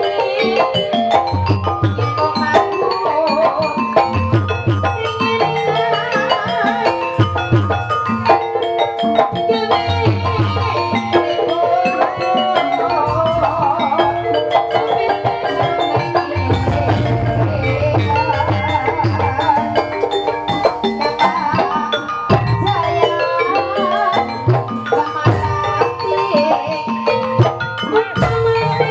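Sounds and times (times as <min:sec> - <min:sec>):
gamelan ensemble melody: 0:00.0 - 0:28.9
wavering melodic line: 0:00.0 - 0:28.9
drum pulse: 0:16.4 - 0:20.3.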